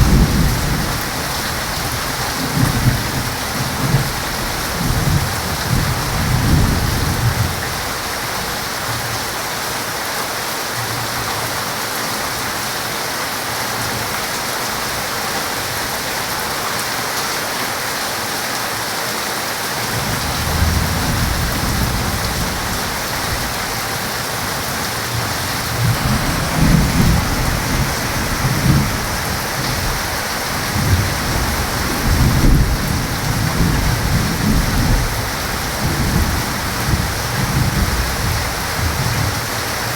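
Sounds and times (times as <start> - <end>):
thunder rumbling: 0.0 - 8.0, 19.9 - 39.8
heavy rain falling: 0.0 - 39.9.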